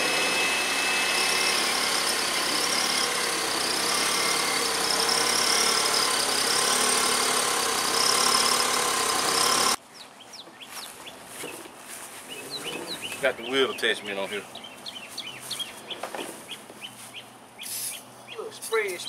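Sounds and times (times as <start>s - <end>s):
car engine running: 0.0s - 9.8s.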